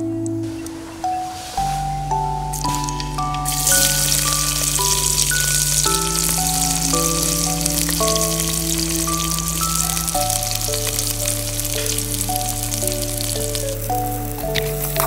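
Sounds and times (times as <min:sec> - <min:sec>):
background music with held notes: 0:00.0 - 0:15.0
onions sizzling in oil: 0:03.5 - 0:15.0.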